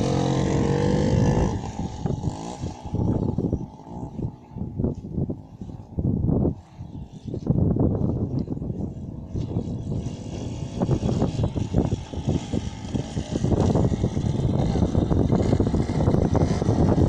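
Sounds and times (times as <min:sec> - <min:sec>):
motorcycle engine running roughly: 0:00.0 - 0:04.2, 0:09.0 - 0:17.0.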